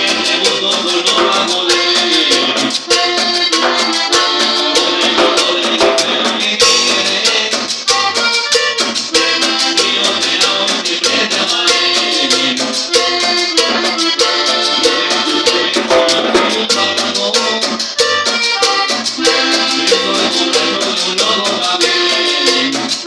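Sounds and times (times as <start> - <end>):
band music with fast beat: 0.0 - 23.0.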